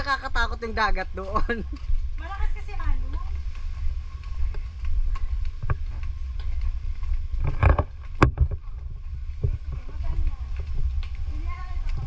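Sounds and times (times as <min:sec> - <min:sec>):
wind buffeting microphone: 0:00.0 - 0:12.0
sharp knocks and clicks: 0:07.4 - 0:08.6.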